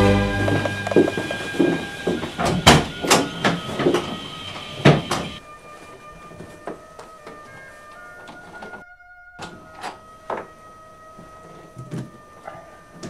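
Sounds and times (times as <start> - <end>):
background music: 0.0 - 2.4, 5.3 - 13.0
room sound: 0.0 - 12.2.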